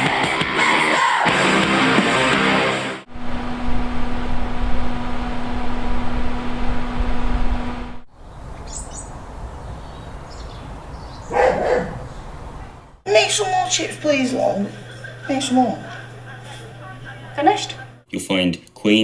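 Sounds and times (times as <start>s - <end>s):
loud low rumble with hum: 3.1s - 8.1s
high bird chirps: 8.2s - 12.8s.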